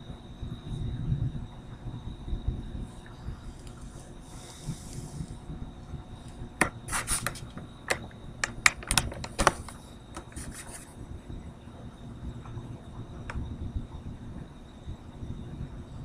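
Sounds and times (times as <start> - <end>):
sharp clicks and scrapes: 6.6 - 10.9.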